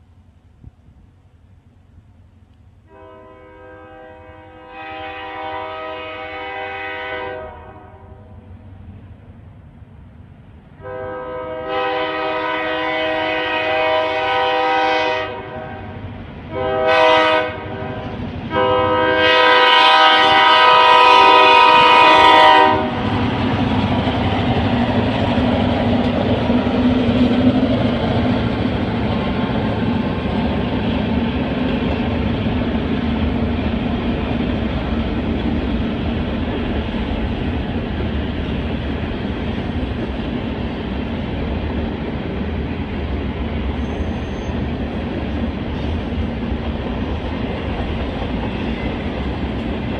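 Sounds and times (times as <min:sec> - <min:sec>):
locomotive air horn blasts: 0:02.9 - 0:08.4, 0:10.8 - 0:23.1
train wheels rolling on rails: 0:08.3 - 0:49.9
locomotive engine rumble: 0:19.9 - 0:49.9.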